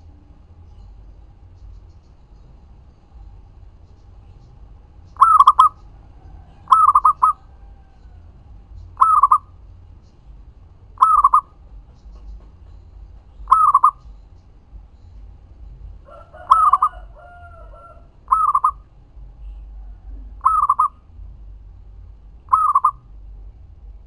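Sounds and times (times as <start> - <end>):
dove cooing: 5.1 - 8.3, 9.0 - 9.6, 11.0 - 11.6, 13.4 - 14.1, 16.0 - 21.0, 22.5 - 23.0.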